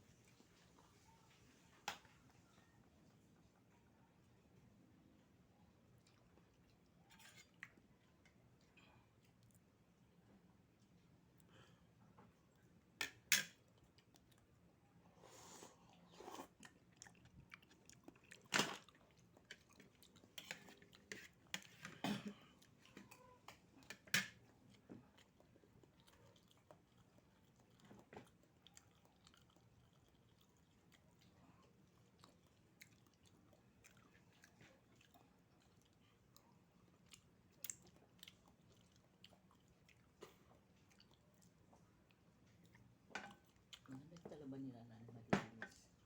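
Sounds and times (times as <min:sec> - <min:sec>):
person slurping and chewing: 0:15.2 - 0:22.0.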